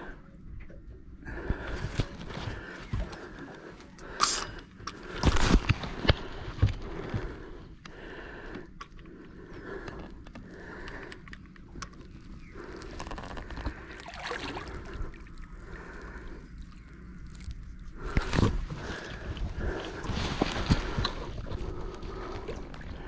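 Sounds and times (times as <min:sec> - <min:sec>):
water lapping against boat hull: 0:11.7 - 0:23.0.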